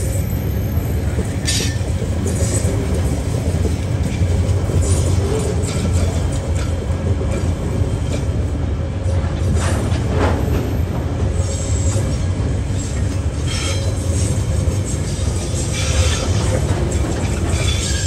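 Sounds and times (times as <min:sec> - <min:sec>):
steel wheels rumbling on rail: 0:00.0 - 0:18.0
high wheel squeals: 0:12.8 - 0:14.3.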